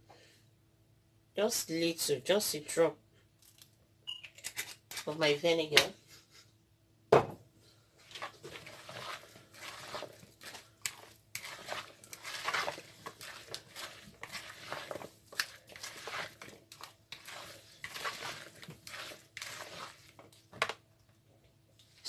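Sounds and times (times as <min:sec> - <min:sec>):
spoon scraping in a bowl: 0:08.1 - 0:20.1.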